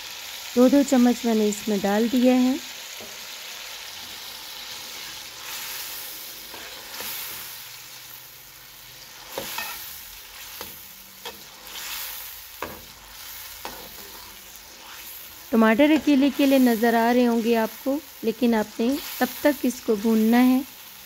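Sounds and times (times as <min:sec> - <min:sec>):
masala sizzling in oil: 0:00.0 - 0:21.0
metal spoon scraping a pan: 0:04.0 - 0:07.7, 0:09.0 - 0:17.6.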